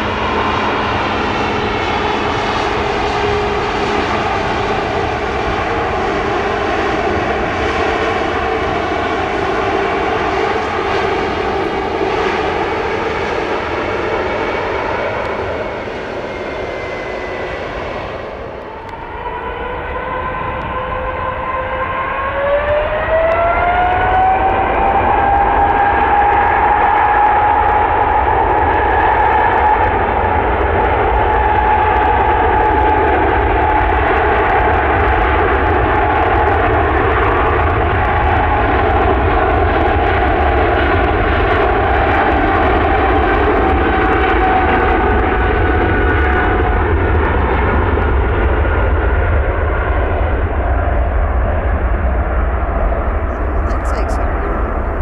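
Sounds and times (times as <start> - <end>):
jet engines with whine: 0.0 - 55.0.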